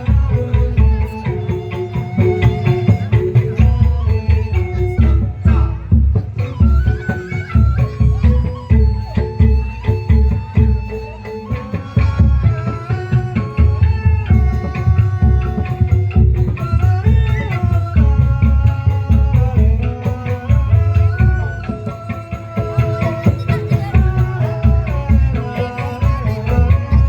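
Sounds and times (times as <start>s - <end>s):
heavy hand-drum beat: 0.0s - 27.0s.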